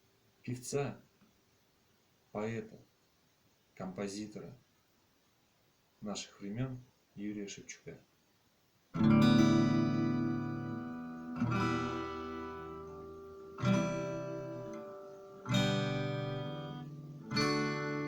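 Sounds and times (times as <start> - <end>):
acoustic guitar chords strummed: 9.0 - 18.0.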